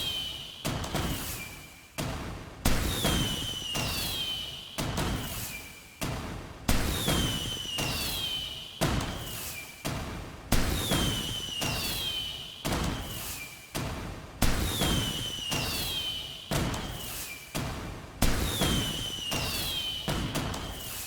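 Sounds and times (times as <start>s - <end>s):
firework whistle sliding down: 3.2s - 4.6s, 7.1s - 8.6s, 10.9s - 12.4s, 14.8s - 16.2s, 18.5s - 20.1s.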